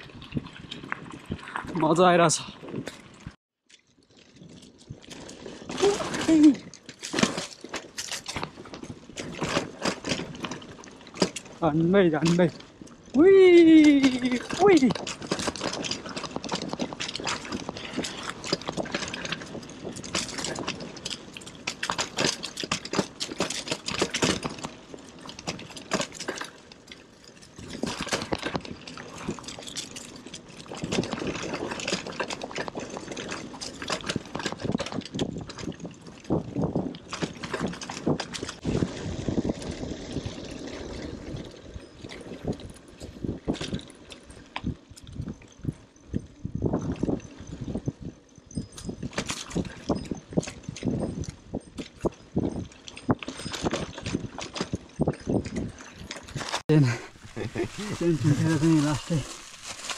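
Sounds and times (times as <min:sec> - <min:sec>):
bicycle rattling: 0:00.0 - 0:59.9
tyres crunching on gravel: 0:56.5 - 0:59.9.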